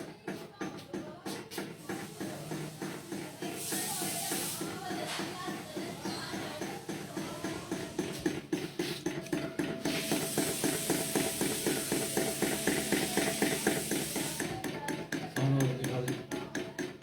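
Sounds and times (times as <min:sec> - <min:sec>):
steady hiss: 0:09.8 - 0:14.4.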